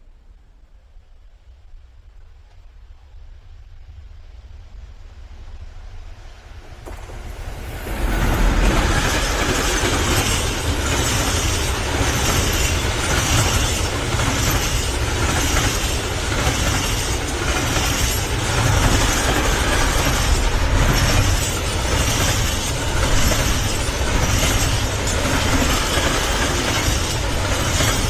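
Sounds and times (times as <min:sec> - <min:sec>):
freight train rumbling: 0:00.0 - 0:28.0.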